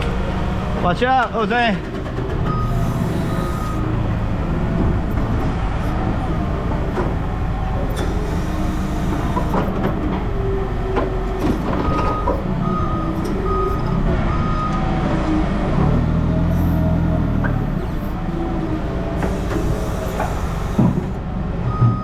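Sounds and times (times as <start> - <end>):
heavy vehicle engine running: 0.0 - 22.0
reversing alarm beeping: 2.4 - 4.2, 7.7 - 15.0, 16.6 - 22.0.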